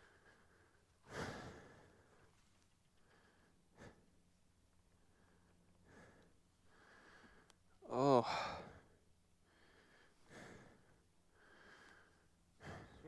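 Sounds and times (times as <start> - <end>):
breathy exhale: 11.4 - 13.0.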